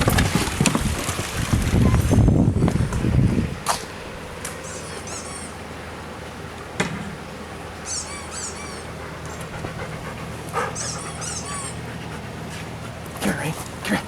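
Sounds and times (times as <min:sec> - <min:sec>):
high squeaky chirps: 0:04.6 - 0:05.6, 0:07.8 - 0:09.5, 0:10.6 - 0:11.9
dog panting: 0:08.0 - 0:14.0.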